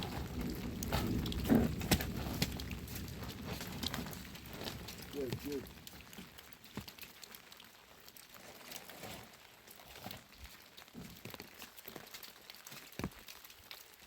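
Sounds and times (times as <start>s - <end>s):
rustling: 0.0s - 7.4s, 8.2s - 13.5s
faint clicks and taps: 0.8s - 7.4s, 10.4s - 13.7s.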